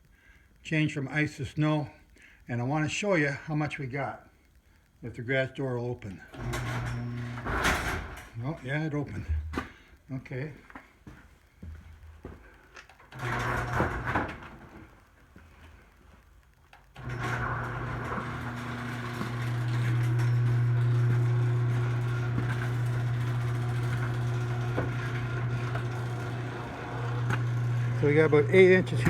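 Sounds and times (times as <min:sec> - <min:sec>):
low mechanical hum: 0:16.9 - 0:29.0.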